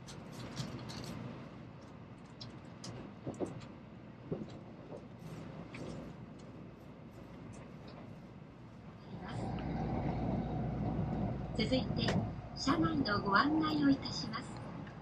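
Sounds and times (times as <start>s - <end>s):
train cabin rumble: 2.9s - 15.0s.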